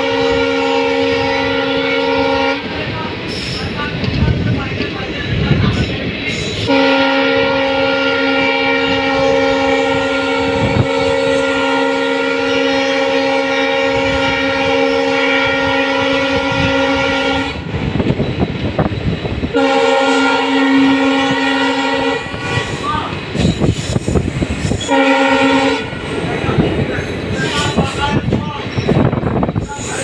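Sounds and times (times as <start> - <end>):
train horn blast: 0.0 - 2.8, 6.6 - 17.7, 19.5 - 22.9, 24.7 - 26.2
train rumbling on track: 0.0 - 30.0.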